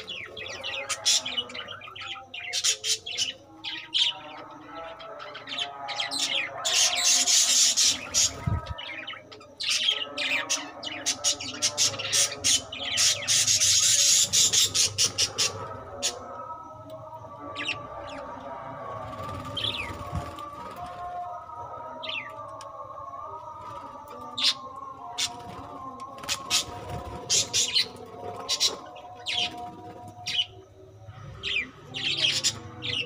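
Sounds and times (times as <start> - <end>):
budgerigars chirping and chattering: 0.0 - 16.3, 19.2 - 20.4, 26.2 - 29.7, 31.4 - 33.0.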